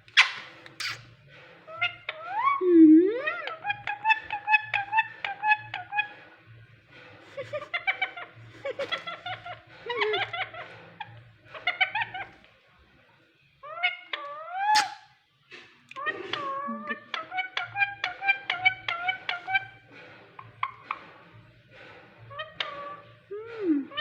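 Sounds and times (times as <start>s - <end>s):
parrot whistling and chattering: 0.2s - 1.0s, 14.0s - 15.1s.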